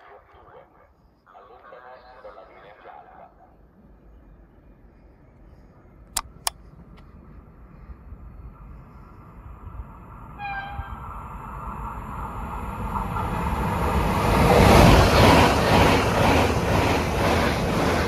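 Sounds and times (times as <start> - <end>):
high-speed train rushing past: 7.2 - 18.0.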